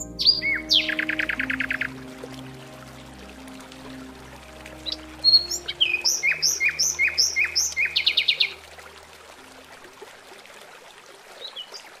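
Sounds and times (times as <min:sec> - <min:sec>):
bird whistled calls and trill: 0:00.0 - 0:01.9, 0:05.2 - 0:08.6.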